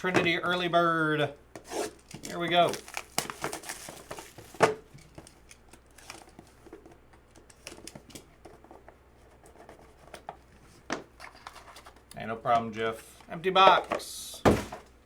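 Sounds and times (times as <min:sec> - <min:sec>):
cardboard rustling: 0:01.6 - 0:12.1.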